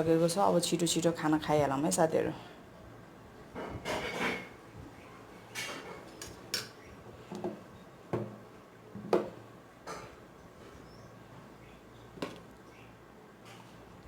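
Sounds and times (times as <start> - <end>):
dishes and utensils clinking: 3.6 - 4.6.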